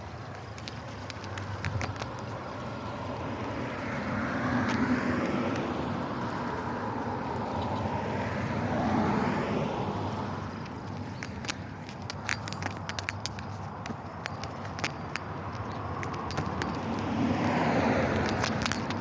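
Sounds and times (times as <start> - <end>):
motor vehicle passing by: 2.5 - 11.8, 15.6 - 19.0.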